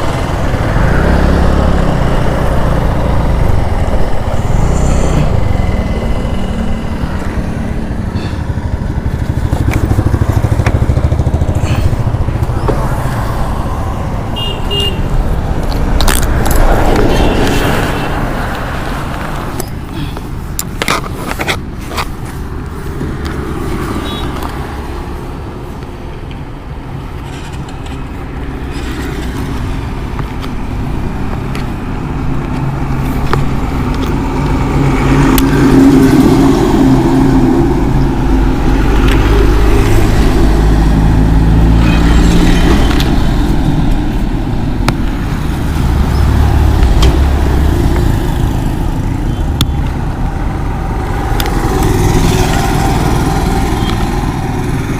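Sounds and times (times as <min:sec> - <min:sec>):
road rumble: 0:00.0 - 0:54.9
wind noise: 0:00.0 - 0:54.9
motorcycle engine running: 0:04.7 - 0:13.1.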